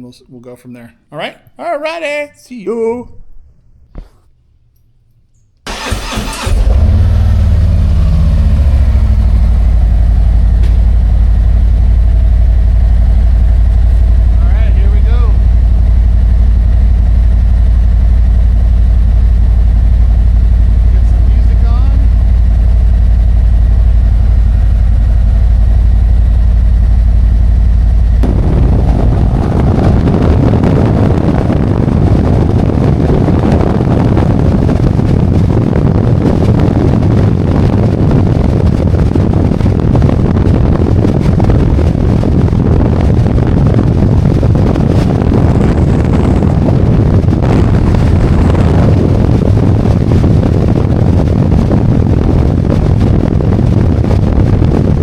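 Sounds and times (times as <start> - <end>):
motorcycle engine under load: 5.6 - 53.9
wind rush: 5.7 - 55.0
motorcycle engine idling: 6.8 - 32.7.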